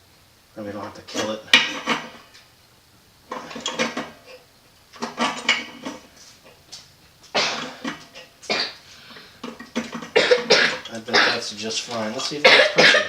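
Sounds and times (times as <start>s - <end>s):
man coughing: 7.4s - 7.8s, 10.2s - 11.6s, 12.4s - 13.0s
man clearing his throat: 10.2s - 11.5s, 12.4s - 13.0s.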